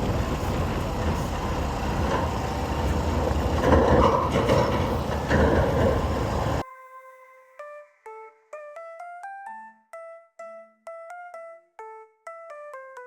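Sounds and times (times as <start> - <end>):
engine and traffic rumble: 0.0 - 6.6
wind buffeting microphone: 0.0 - 6.6.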